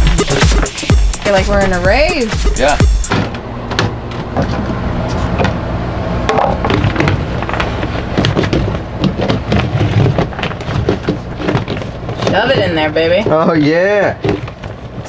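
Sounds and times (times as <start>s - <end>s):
low mechanical hum: 0.0s - 15.0s
knocks and clatter of handling: 3.1s - 5.6s, 6.3s - 15.0s.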